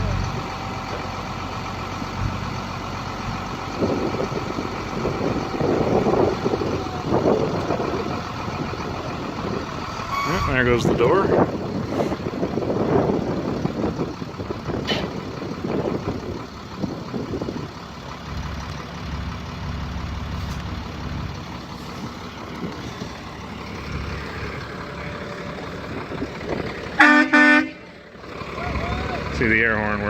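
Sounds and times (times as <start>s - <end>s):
diesel truck engine running: 0.0s - 30.0s
engine knocks: 0.0s - 30.0s.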